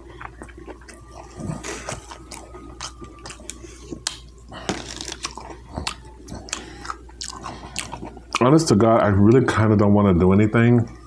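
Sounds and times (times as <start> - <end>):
close chewing with mouth smacks: 0.0 - 8.6.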